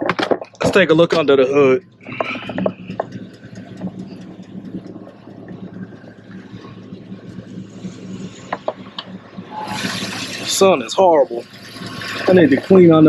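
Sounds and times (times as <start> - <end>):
pickup engine idling: 0.0 - 13.0.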